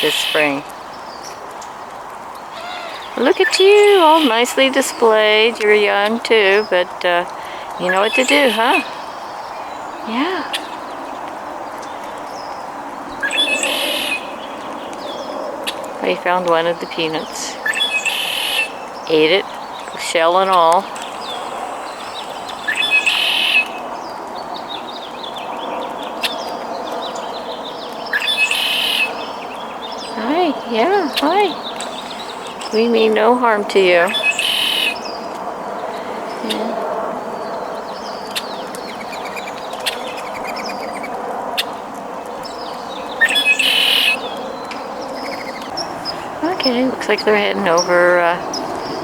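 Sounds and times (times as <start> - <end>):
harsh bird call: 0.0 - 0.6, 2.5 - 5.7, 7.3 - 11.0, 13.2 - 15.3, 16.8 - 23.9, 33.9 - 35.2, 42.6 - 44.4
wild birds chirping: 0.0 - 49.0.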